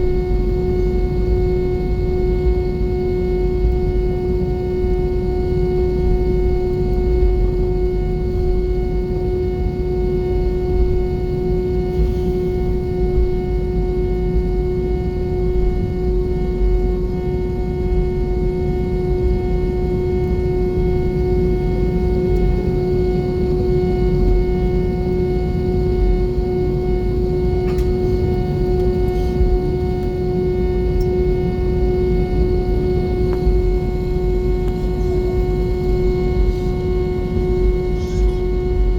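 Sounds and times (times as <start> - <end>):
jet engine drone in cabin: 0.0 - 38.9.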